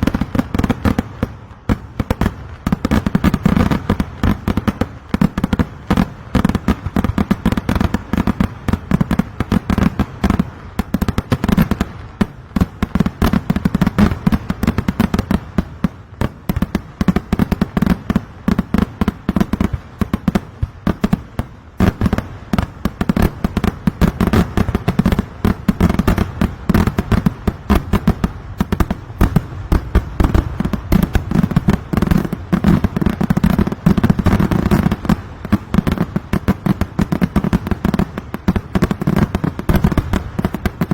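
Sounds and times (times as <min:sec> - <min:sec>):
firecracker bangs: 0:00.0 - 0:04.8, 0:21.7 - 0:37.4.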